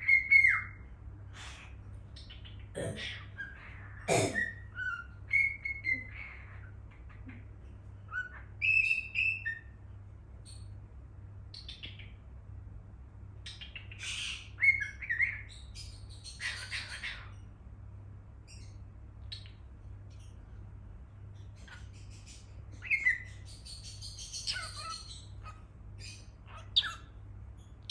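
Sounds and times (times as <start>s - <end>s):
cockatiel chirping: 0.0s - 0.8s, 4.4s - 6.7s, 8.1s - 9.8s, 13.4s - 17.4s, 21.6s - 27.1s
faint steady low hum: 0.0s - 27.9s.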